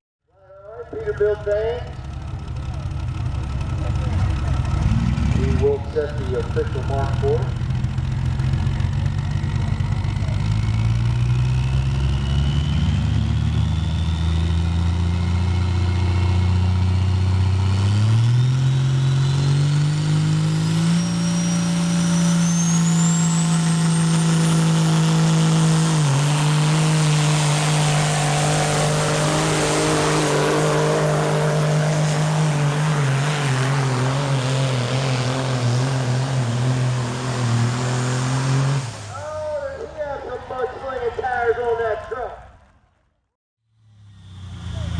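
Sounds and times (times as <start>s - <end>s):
truck diesel engine at full throttle: 0.6s - 41.0s, 43.7s - 44.9s
high turbo whistle: 20.2s - 34.0s.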